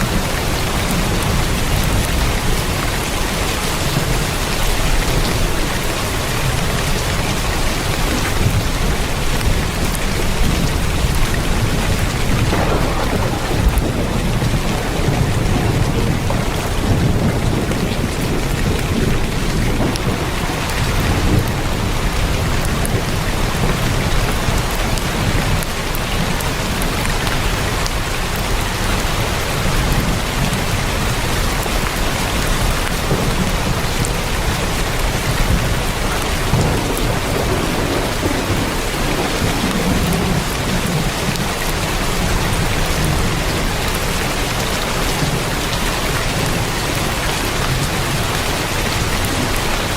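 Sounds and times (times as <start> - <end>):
heavy rain on a tin roof: 0.0 - 49.9
low rumble: 12.3 - 18.0.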